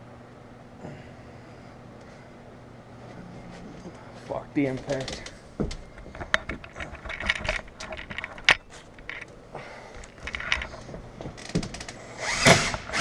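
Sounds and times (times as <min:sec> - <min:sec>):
tools clicking and knocking: 0:04.8 - 0:09.3, 0:10.0 - 0:11.9.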